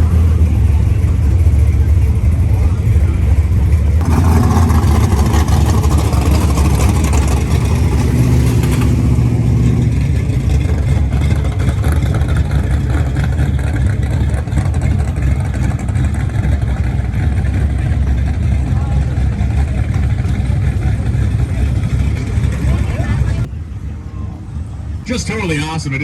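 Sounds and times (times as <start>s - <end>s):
drag racing car accelerating: 0.0s - 26.0s.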